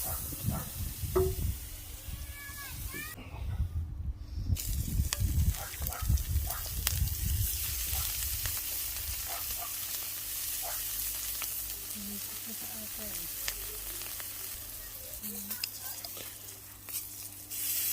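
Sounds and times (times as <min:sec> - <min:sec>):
meat sizzling in a pan: 0:04.6 - 0:17.9.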